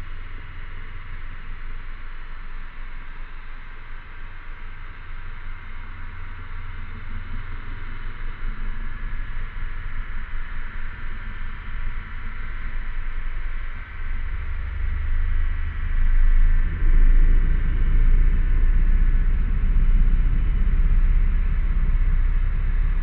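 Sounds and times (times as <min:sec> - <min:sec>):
low rumble: 0:06.0 - 0:23.0.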